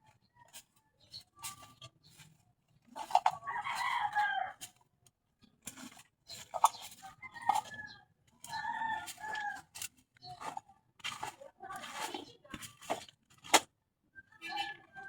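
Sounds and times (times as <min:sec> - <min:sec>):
rooster crowing: 0:03.4 - 0:04.6.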